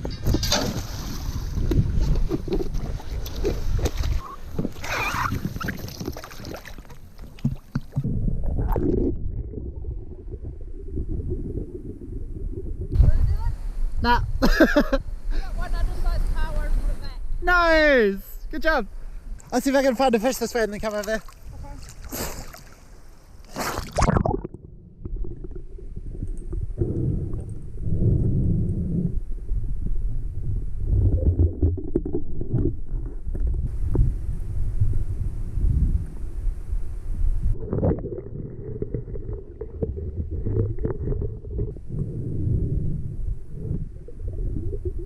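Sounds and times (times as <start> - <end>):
muffled underwater rumbling: 0.0 - 14.5, 23.8 - 45.0
water splashing: 0.2 - 12.8, 19.4 - 27.6
splash into water: 0.4 - 1.7, 2.7 - 7.8, 21.2 - 22.9, 23.5 - 24.4.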